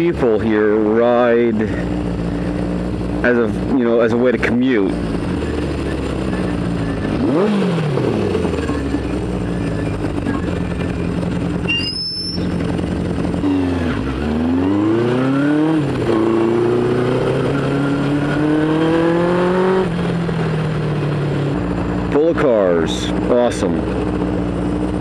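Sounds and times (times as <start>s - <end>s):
motorcycle engine revving: 0.0s - 25.0s
brief high squeal: 11.7s - 12.5s.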